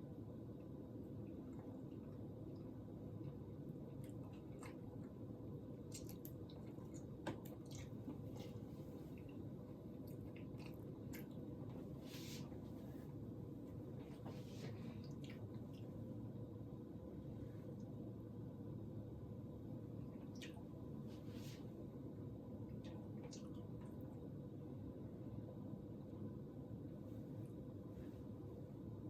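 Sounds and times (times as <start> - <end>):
steady low hum: 0.0 - 29.0
close-up wet chewing: 3.9 - 11.8.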